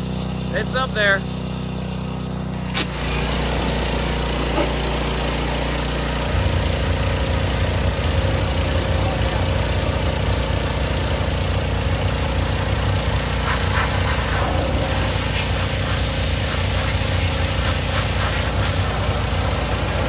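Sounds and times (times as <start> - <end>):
pressure washer engine droning: 0.0 - 20.0
constant high hiss: 12.3 - 20.0.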